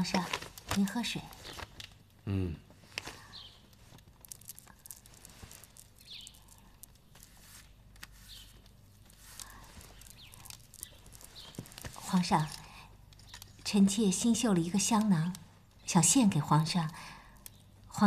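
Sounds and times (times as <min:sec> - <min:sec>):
faint rustles: 0:00.0 - 0:14.2
small clicks: 0:03.0 - 0:17.7.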